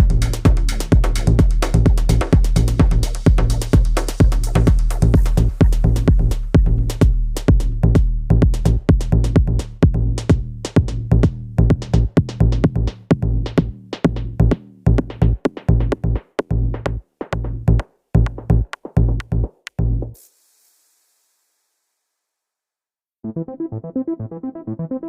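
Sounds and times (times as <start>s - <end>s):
electronic music with drum-machine beat: 0.0s - 9.6s, 10.2s - 20.2s.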